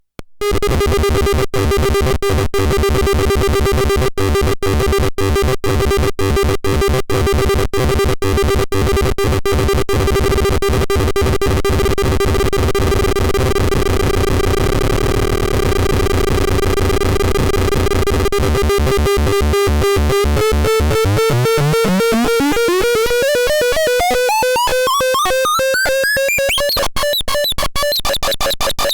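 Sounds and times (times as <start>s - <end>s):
electronic synthesizer music: 19.4s - 27.5s.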